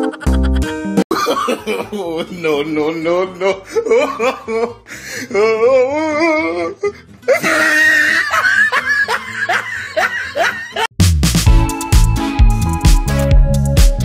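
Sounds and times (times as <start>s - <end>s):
person laughing: 0.0s - 10.9s
music with steady beat: 11.0s - 14.0s.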